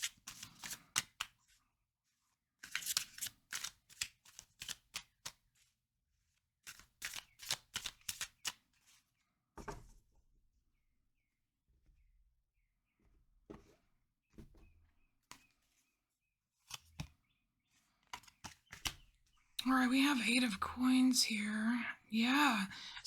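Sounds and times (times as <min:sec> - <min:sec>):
cards being shuffled: 0:00.0 - 0:01.4, 0:02.6 - 0:05.4, 0:06.6 - 0:09.0, 0:18.0 - 0:19.0.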